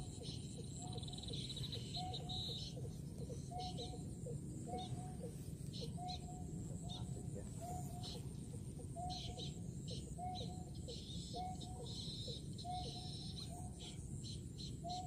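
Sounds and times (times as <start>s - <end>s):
steady low rumble: 0.0s - 11.3s
bird calls: 0.0s - 15.0s.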